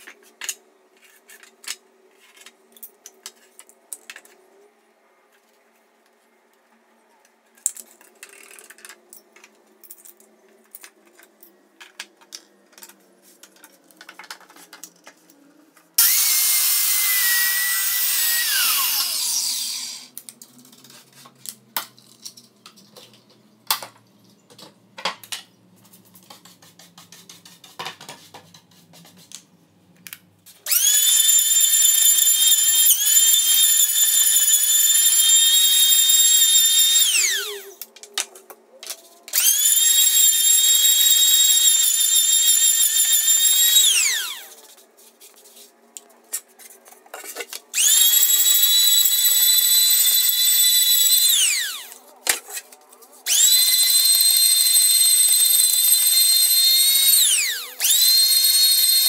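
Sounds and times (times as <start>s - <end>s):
circular saw cutting wood: 16.0s - 20.1s, 30.7s - 37.8s, 39.3s - 44.6s, 47.8s - 52.0s, 53.3s - 59.0s
electric planer whining: 16.0s - 20.1s, 30.7s - 37.7s, 39.4s - 44.5s, 47.8s - 52.0s, 53.3s - 59.0s.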